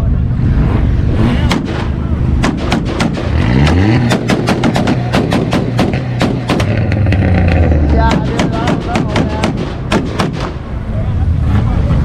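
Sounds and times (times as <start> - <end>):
car engine revving: 0.0 - 12.0
exhaust pops and bangs: 1.4 - 10.7.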